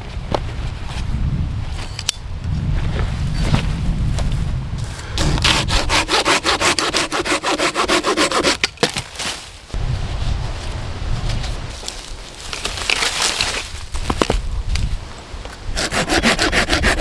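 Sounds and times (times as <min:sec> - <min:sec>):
hand saw cutting wood: 0:05.2 - 0:08.7, 0:15.7 - 0:17.0.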